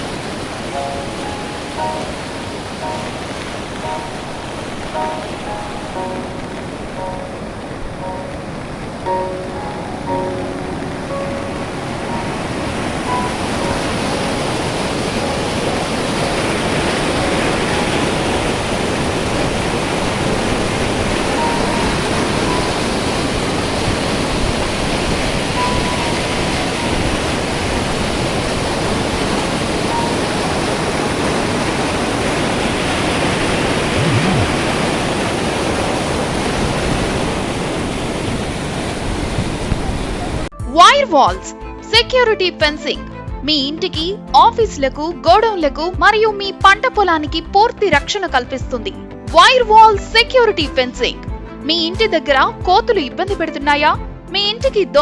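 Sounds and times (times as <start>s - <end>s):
floodwater rushing: 0.0s - 40.5s.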